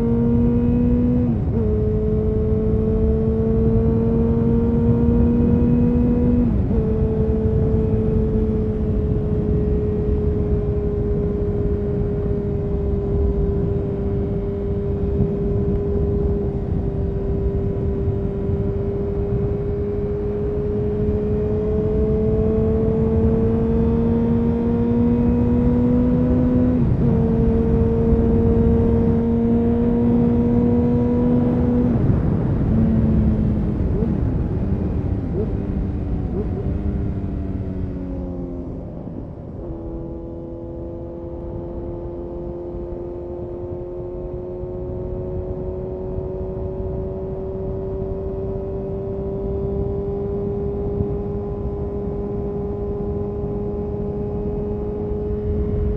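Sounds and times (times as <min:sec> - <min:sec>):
motorcycle engine with gear changes: 0:00.0 - 0:55.9.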